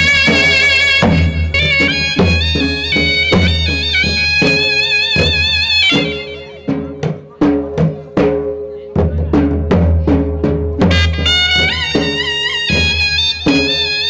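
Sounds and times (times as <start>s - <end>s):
wavering wind instrument melody: 0.0s - 7.0s, 10.8s - 14.0s
steady drum beat: 0.0s - 14.0s.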